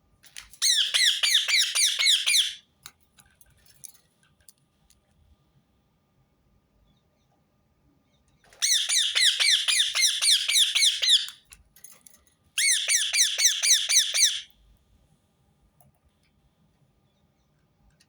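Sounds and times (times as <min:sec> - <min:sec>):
parakeet calling shrilly: 0:00.6 - 0:02.6, 0:08.6 - 0:11.4, 0:12.6 - 0:14.5.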